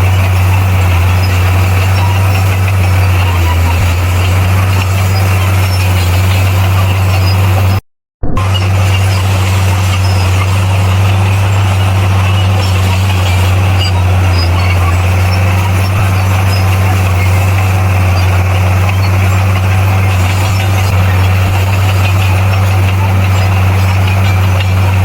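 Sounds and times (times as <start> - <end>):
bulldozer diesel engine droning: 0.0 - 25.0.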